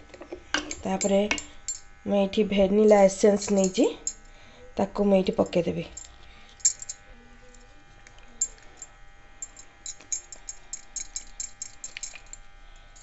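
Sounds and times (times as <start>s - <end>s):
spoon clicking against bowl: 3.4s - 4.2s, 9.4s - 12.4s.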